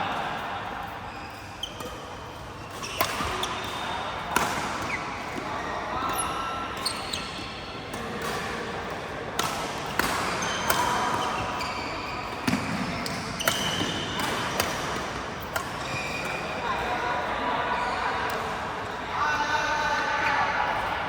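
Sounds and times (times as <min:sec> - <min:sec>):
shoes squeaking on court: 0:01.0 - 0:08.4, 0:09.8 - 0:16.9
racket hitting shuttlecock: 0:01.7 - 0:05.5, 0:06.1 - 0:16.9.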